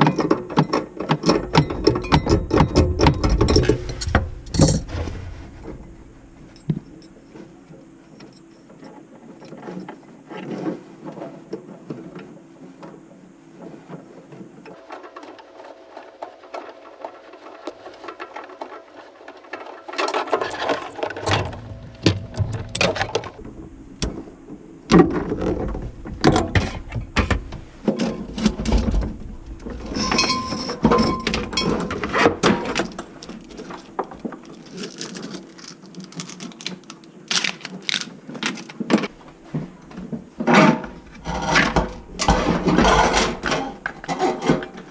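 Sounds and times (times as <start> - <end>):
tools clicking and clanking: 14.8 - 23.4.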